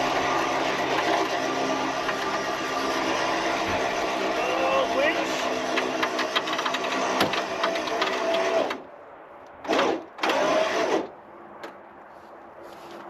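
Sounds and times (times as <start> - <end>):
electric winch motor whining: 0.0 - 8.8, 9.7 - 11.1.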